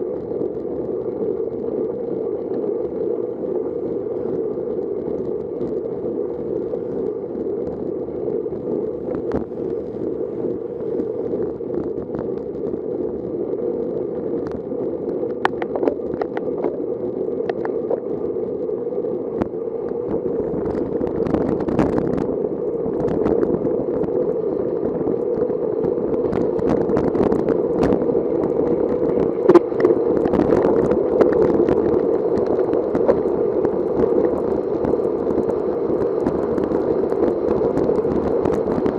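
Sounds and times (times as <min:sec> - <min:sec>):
wind rushing over microphone: 0:00.0 - 0:38.9
sharp ticks and clicks: 0:15.2 - 0:16.8, 0:17.4 - 0:18.1, 0:25.2 - 0:38.9.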